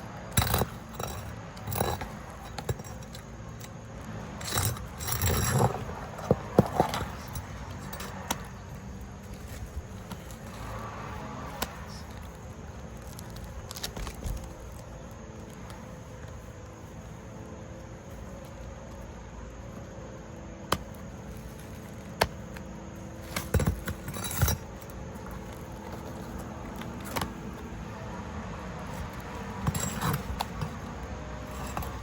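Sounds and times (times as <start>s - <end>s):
hand work knocks and scrapes on roof: 4.4s - 8.7s, 23.2s - 27.6s.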